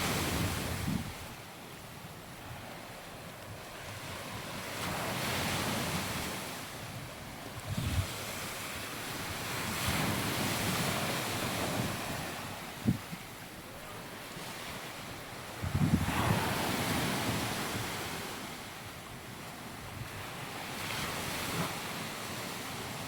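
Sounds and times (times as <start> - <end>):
wind buffeting microphone: 0.0 - 1.4, 7.4 - 8.4, 11.5 - 13.3, 15.6 - 17.8
sea waves on beach: 0.0 - 23.0.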